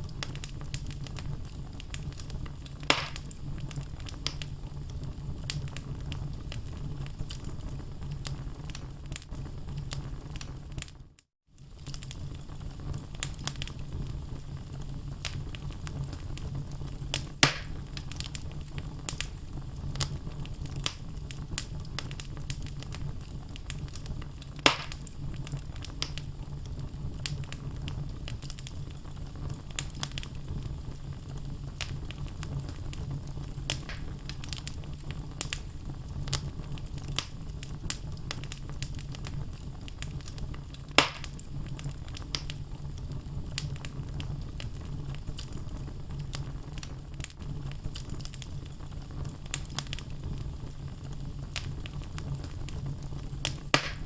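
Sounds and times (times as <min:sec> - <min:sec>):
logs crackling: 0:00.0 - 0:06.3, 0:17.1 - 0:26.2, 0:31.8 - 0:42.6, 0:53.4 - 0:54.0
loud fire pops: 0:00.0 - 0:11.0, 0:11.6 - 0:54.0
fire rumbling and hissing: 0:00.0 - 0:54.0.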